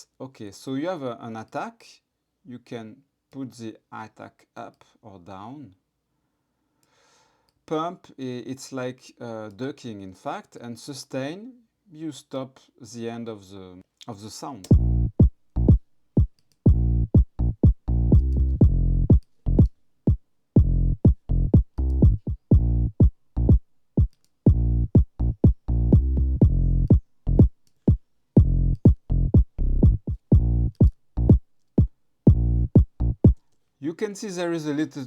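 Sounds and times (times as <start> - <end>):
house music kick and bass loop: 14.7 - 15.8, 16.7 - 19.7, 20.6 - 23.6, 24.5 - 31.4, 32.3 - 33.4.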